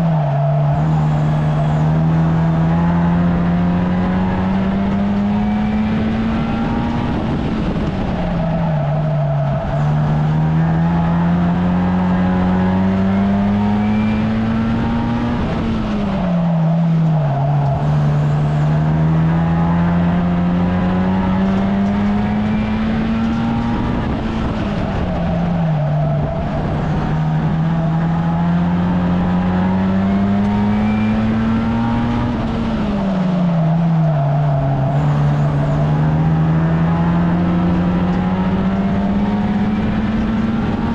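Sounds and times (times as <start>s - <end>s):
racing car engine: 0.0s - 40.9s.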